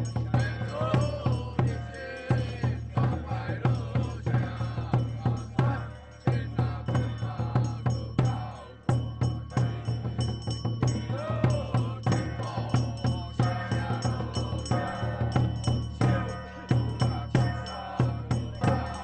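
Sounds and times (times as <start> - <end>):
drum and percussion beat: 0.0 - 19.0
person chanting: 11.0 - 19.0.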